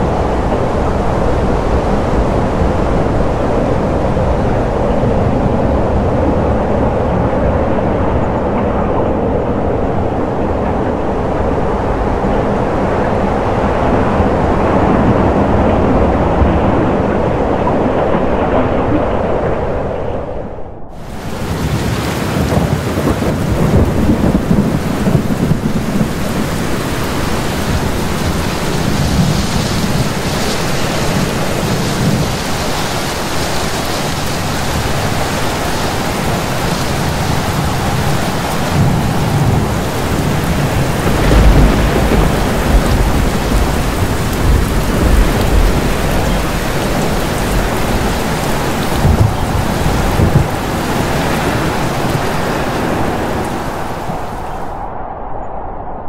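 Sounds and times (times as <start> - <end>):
heavy rain falling: 0.0 - 20.0, 20.9 - 54.8
rolling thunder: 0.0 - 56.0.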